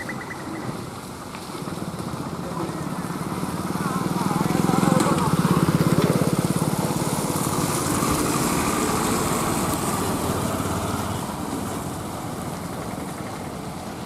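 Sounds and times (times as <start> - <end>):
small truck engine driving past: 0.0 - 14.0.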